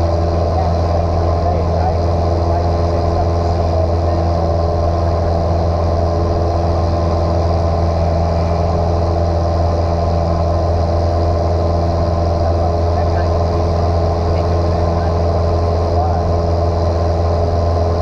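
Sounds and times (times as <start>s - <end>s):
airplane engine and propeller droning: 0.0s - 18.0s.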